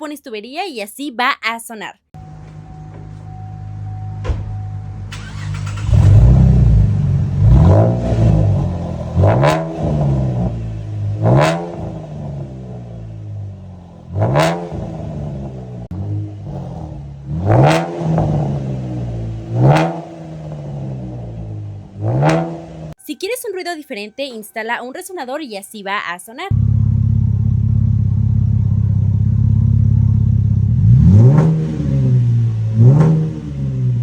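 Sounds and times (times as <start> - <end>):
loud car exhaust revving: 3.7 - 23.0, 26.5 - 34.0.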